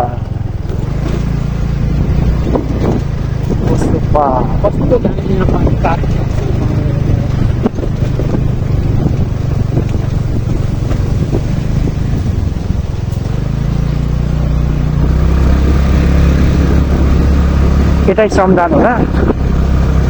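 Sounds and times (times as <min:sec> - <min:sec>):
motorcycle engine running: 0:00.0 - 0:20.0
wind rushing over microphone: 0:00.0 - 0:20.0.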